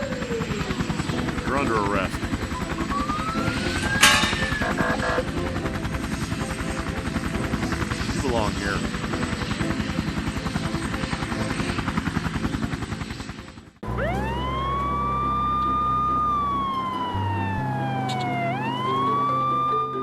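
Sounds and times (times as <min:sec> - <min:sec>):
police siren wailing: 0:00.0 - 0:05.7, 0:13.8 - 0:20.0
helicopter rotor chopping: 0:00.0 - 0:20.0.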